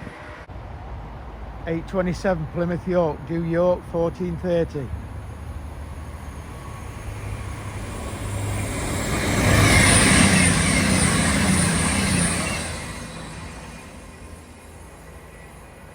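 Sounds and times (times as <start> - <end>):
passenger train passing: 0.0 - 15.9
high steady whine: 5.2 - 15.7.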